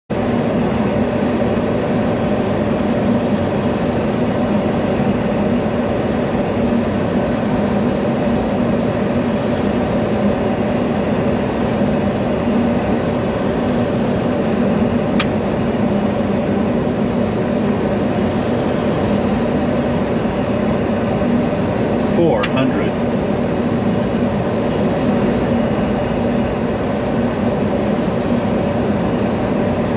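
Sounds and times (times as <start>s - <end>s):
low steady hum: 21.8s - 24.1s.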